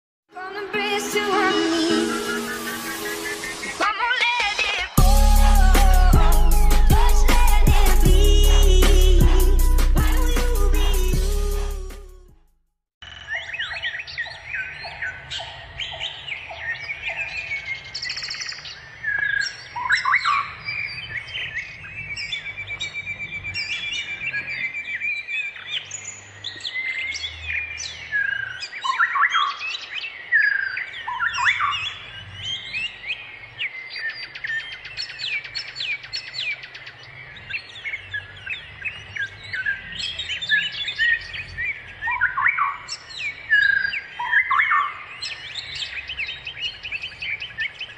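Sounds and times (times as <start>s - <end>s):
wild birds chirping and calling: 1.7s - 3.8s, 13.0s - 47.9s.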